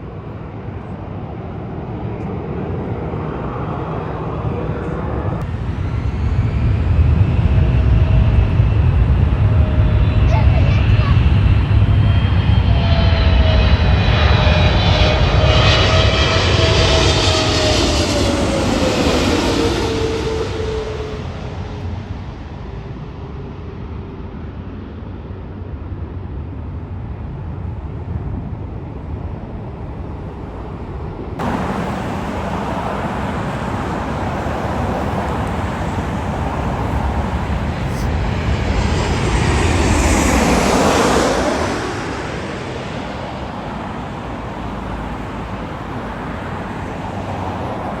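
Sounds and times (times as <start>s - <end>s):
jet airliner passing: 0.0s - 25.0s, 28.0s - 48.0s
traffic rumble: 0.6s - 21.8s, 31.4s - 48.0s.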